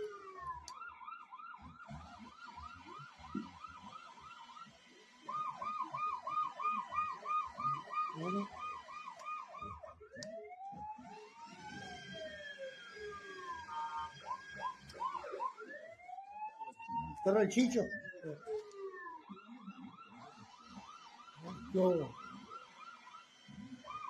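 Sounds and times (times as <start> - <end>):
siren wail: 0.0 - 24.0
toy police siren yelping: 0.0 - 24.0.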